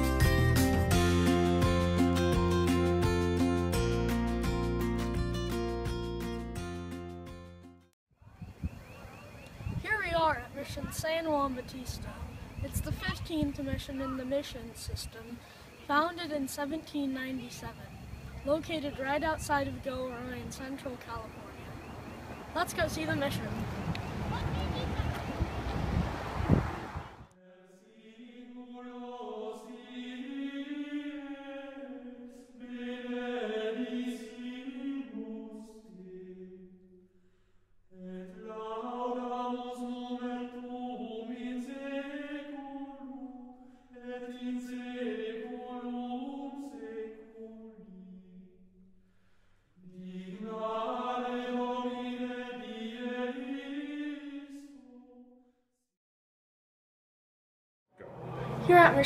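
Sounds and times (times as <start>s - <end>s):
voices singing chant in unison: 25.3s - 36.7s, 38.0s - 48.4s, 49.8s - 55.2s.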